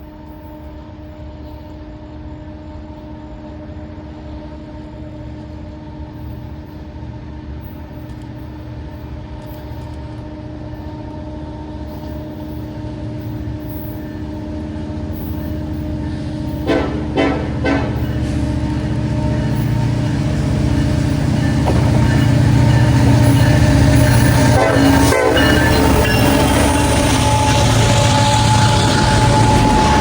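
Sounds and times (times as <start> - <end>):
diesel locomotive engine rumble: 0.0 - 30.0.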